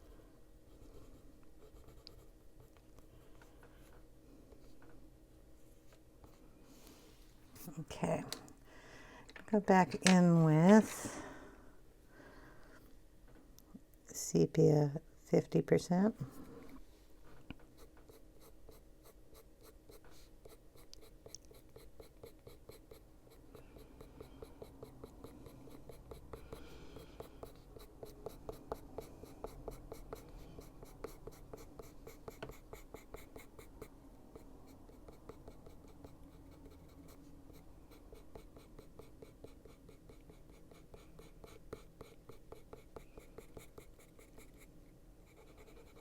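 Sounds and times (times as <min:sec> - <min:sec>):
coloured pencil scratching on paper: 0:00.7 - 0:02.7, 0:17.7 - 0:44.7, 0:45.3 - 0:46.0.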